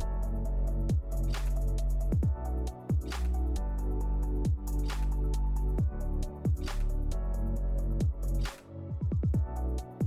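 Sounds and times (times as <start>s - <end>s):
hi-hat strokes: 0.0s - 8.6s
bass drum hits: 2.1s - 3.1s, 4.4s - 4.7s, 8.0s - 8.3s.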